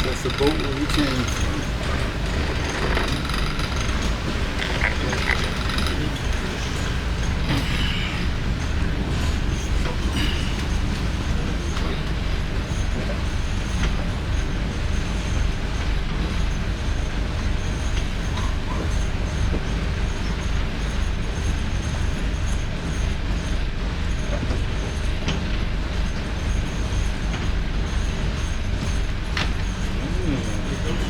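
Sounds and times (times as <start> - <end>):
boat engine rumbling: 0.0 - 17.8.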